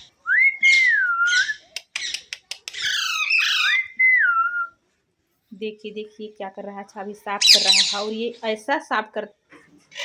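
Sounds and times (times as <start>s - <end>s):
parrot squawking: 0.6s - 4.0s, 7.4s - 8.1s
parrot clicks: 1.7s - 3.0s.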